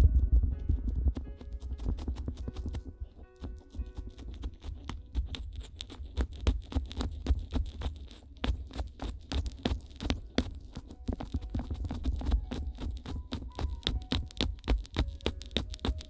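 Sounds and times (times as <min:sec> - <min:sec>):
muffled low rumble: 0:00.0 - 0:01.4
crackles and clicks on microphones: 0:00.0 - 0:16.0.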